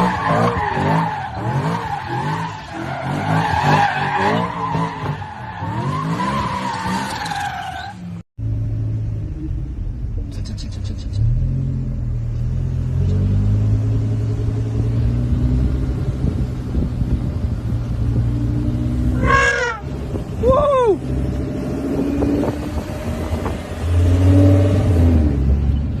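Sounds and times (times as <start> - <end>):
car engine rumble: 0.0 - 26.0.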